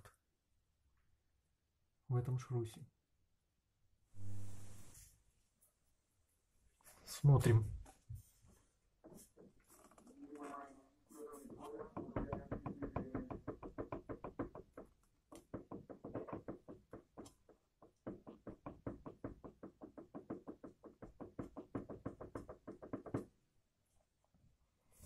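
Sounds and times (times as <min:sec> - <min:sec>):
rapid metallic knocking of joint: 0:12.0 - 0:23.3.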